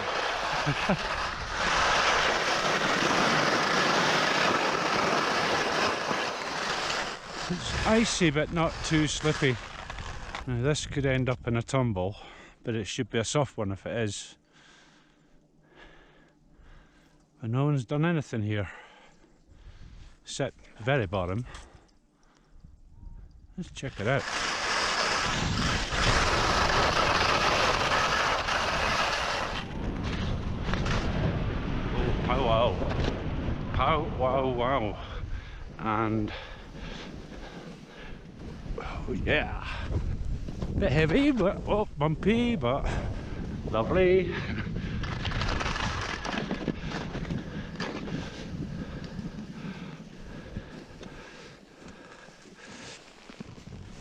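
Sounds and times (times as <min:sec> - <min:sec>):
skis scraping over icy snow: 0:00.0 - 0:10.9, 0:23.7 - 0:31.2, 0:35.8 - 0:54.0
wind rushing on microphone: 0:25.1 - 0:51.2.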